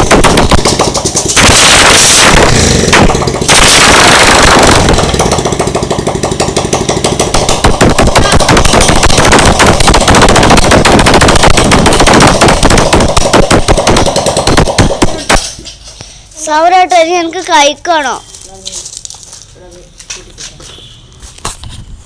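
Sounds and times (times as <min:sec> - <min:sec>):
motorcycle engine running: 0:00.0 - 0:15.4.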